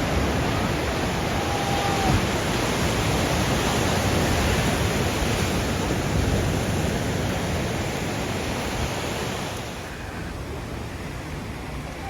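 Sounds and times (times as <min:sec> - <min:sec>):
sea surf washing on shore: 0:00.0 - 0:12.0.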